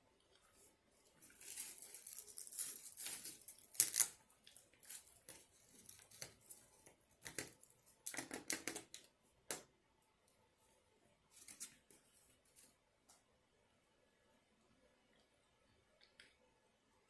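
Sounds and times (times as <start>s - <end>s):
paper sharp crackles: 1.2s - 4.2s
paper wrapping rustling and tearing: 1.2s - 4.2s.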